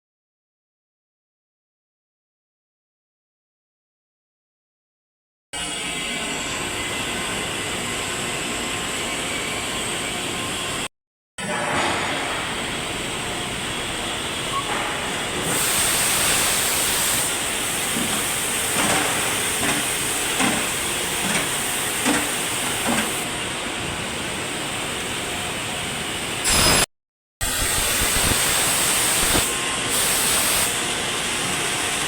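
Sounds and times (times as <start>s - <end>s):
machinery hissing: 12.4s - 23.2s, 27.5s - 30.8s.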